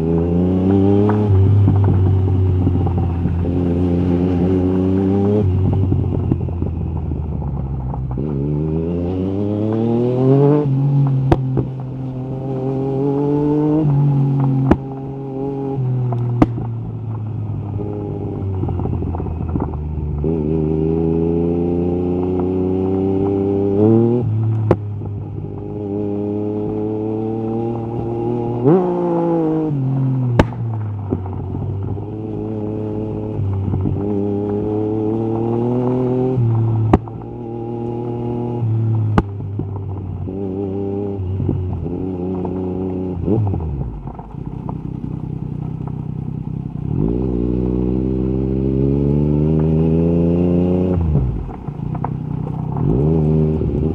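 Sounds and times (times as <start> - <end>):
motorcycle engine accelerating: 0.0 - 53.9
exhaust cracks: 0.7 - 8.6, 13.8 - 20.6, 29.7 - 37.5, 38.1 - 53.9.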